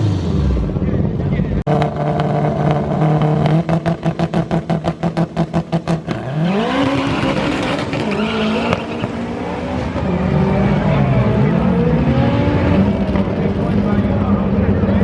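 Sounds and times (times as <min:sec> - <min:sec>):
drag race car engine accelerating: 0:00.0 - 0:15.0.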